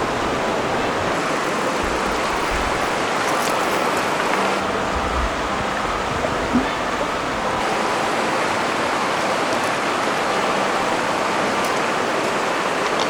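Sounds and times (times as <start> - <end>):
river water rushing: 0.0 - 13.0
low rumble: 4.7 - 7.4.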